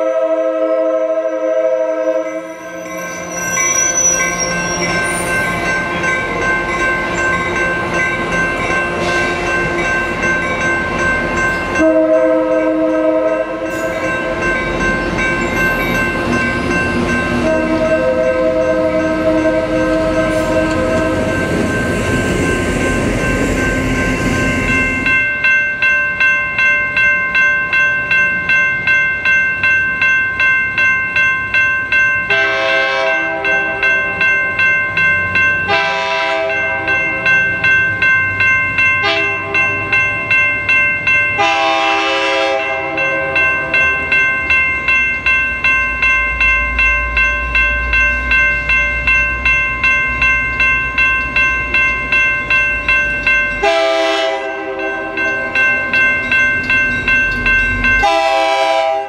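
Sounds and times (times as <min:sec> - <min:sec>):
train horn blasts: 0:00.0 - 0:05.3, 0:11.8 - 0:14.0, 0:17.4 - 0:21.5, 0:32.3 - 0:34.0, 0:35.7 - 0:37.0, 0:39.0 - 0:39.6, 0:41.4 - 0:43.5, 0:53.6 - 0:55.0, 0:58.0 - 0:59.0
diesel locomotive engine: 0:00.0 - 0:29.3, 0:31.4 - 0:59.0
commuter train rolling past: 0:00.0 - 0:59.0
crossing bell ringing: 0:00.0 - 0:59.0.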